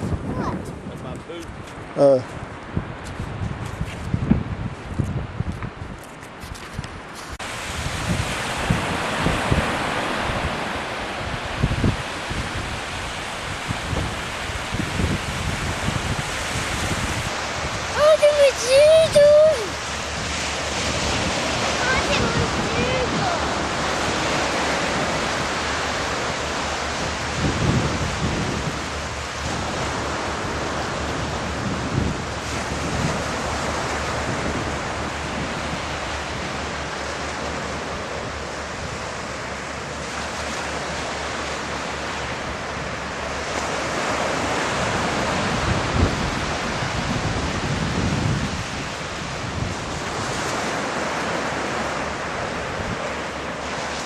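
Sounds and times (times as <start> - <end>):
surf: 0.0 - 54.0
wind: 0.0 - 54.0
wind buffeting microphone: 0.0 - 54.0.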